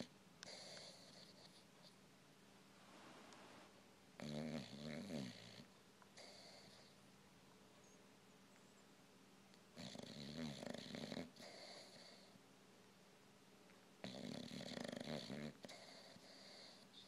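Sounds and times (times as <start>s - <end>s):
dog breathing softly: 0.0s - 2.0s, 4.6s - 7.0s, 10.7s - 12.4s, 14.1s - 17.0s
dog snoring: 0.0s - 2.0s, 4.2s - 7.0s, 9.7s - 12.4s, 14.0s - 17.0s.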